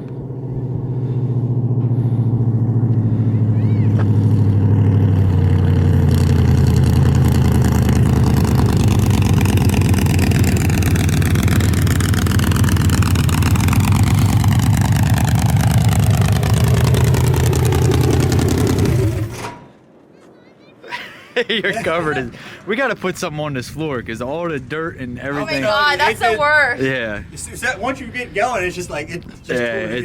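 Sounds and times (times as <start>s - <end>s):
truck engine at high revs: 0.0s - 19.7s.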